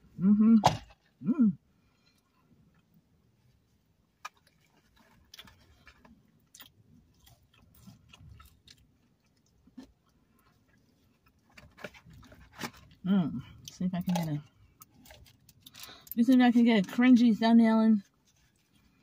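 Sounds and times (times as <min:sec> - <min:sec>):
person chewing food: 0:04.0 - 0:16.2.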